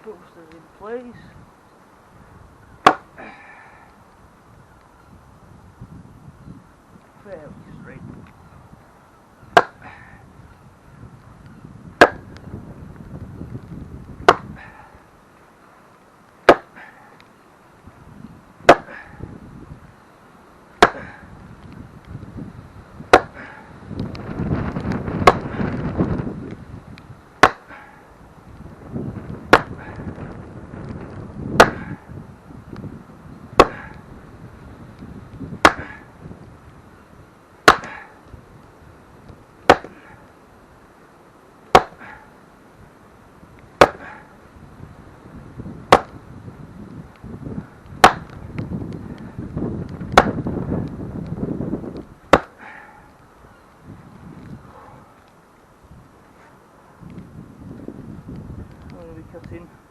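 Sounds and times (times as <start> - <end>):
blows driving a post: 2.8 - 3.7, 9.5 - 10.2, 11.6 - 15.4, 16.3 - 17.4, 18.6 - 19.5, 20.5 - 42.7, 43.5 - 55.7
rustling: 34.0 - 59.1.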